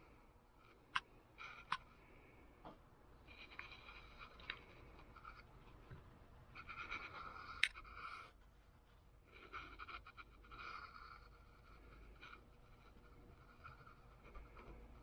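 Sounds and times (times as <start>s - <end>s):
faint scraping and rubbing: 3.2s - 15.0s.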